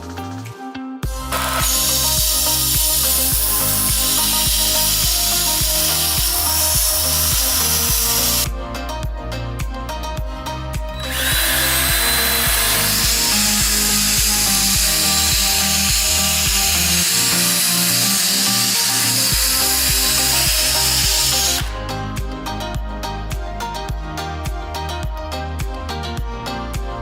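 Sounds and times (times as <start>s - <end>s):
background music with steady beat: 0.0s - 27.0s
sharpening machine grinding blade: 1.2s - 8.5s, 11.0s - 21.8s.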